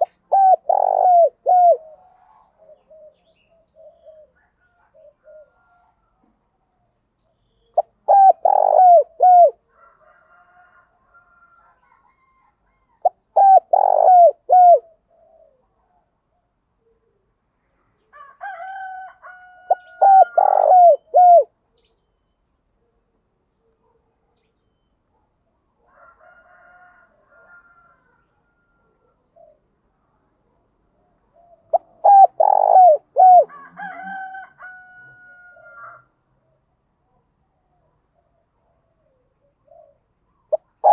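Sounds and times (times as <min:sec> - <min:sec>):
dove cooing: 0:00.0 - 0:06.1, 0:07.8 - 0:09.9, 0:13.0 - 0:17.3, 0:19.5 - 0:21.6, 0:28.5 - 0:29.7, 0:31.0 - 0:34.5, 0:38.2 - 0:40.9
faint rooster crowing: 0:00.0 - 0:06.7, 0:08.8 - 0:14.9, 0:17.7 - 0:21.4, 0:25.7 - 0:30.2, 0:31.3 - 0:36.5.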